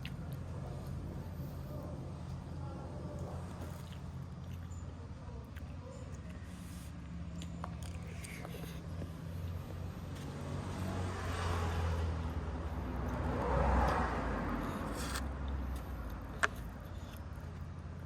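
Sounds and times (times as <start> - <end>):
motor vehicle passing by: 8.5 - 17.4.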